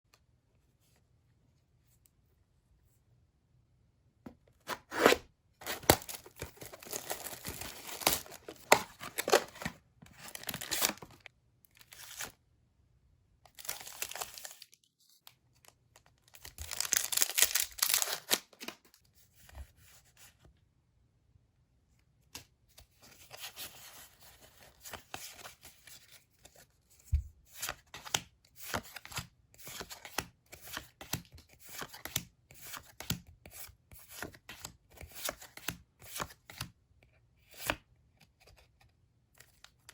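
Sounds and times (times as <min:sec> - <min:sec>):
packaging ripping and crinkling: 0:04.9 - 0:12.3, 0:13.6 - 0:14.7, 0:16.3 - 0:18.7.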